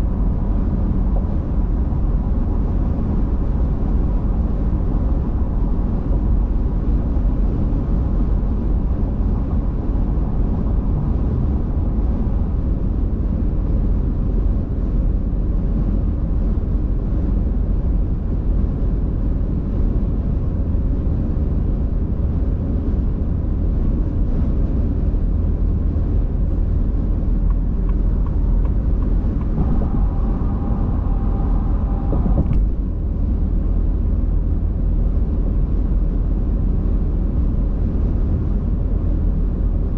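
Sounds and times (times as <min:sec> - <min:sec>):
car driving on road: 0:00.0 - 0:39.9
faint steady tone: 0:27.4 - 0:33.1.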